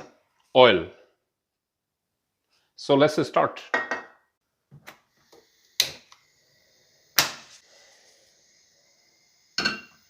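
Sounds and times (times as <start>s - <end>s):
cookware knocking: 3.7s - 4.2s
faint steady hiss: 4.4s - 10.0s.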